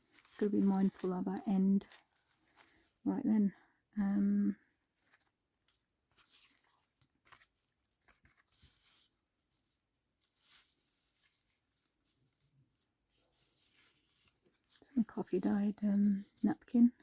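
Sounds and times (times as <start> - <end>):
paper rustling and tearing: 6.1 - 9.2.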